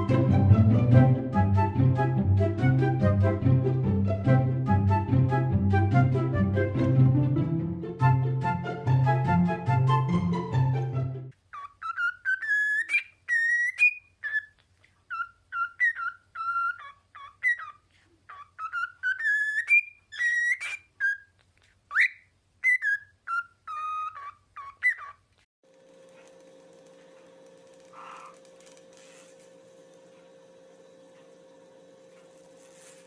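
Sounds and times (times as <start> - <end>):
parrot whistling a tune: 11.5 - 14.5, 15.1 - 21.3, 21.9 - 25.2
steady low hum: 25.7 - 33.0.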